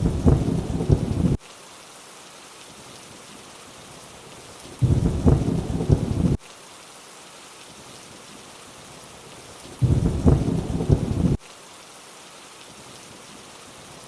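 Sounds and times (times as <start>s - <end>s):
deep thunder rumbles: 0.0s - 1.4s, 4.8s - 6.4s, 9.8s - 11.4s
steady rainfall: 0.0s - 14.0s.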